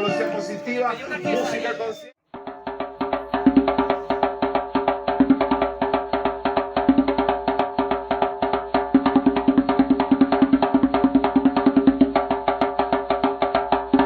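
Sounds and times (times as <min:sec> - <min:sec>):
band music: 0:00.0 - 0:02.2
fast clicking percussion beat: 0:02.7 - 0:14.0.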